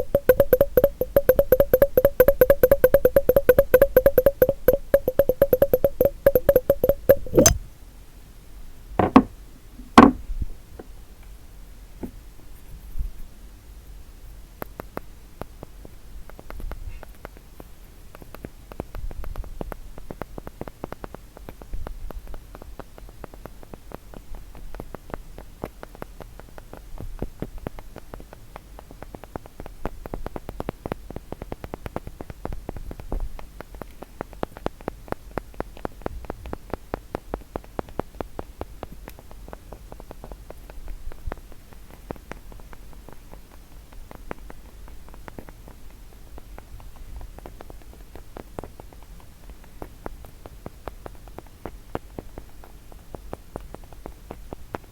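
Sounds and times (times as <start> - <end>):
fingers tapping on wooden block: 0.0 - 7.6, 9.0 - 9.3.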